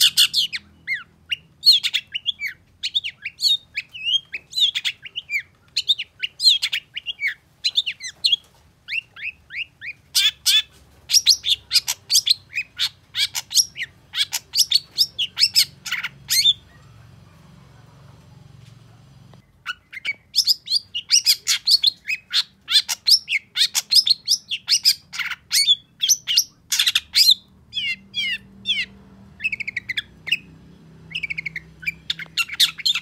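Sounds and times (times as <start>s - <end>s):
bird singing chirps and whistles: 19.7s - 30.5s.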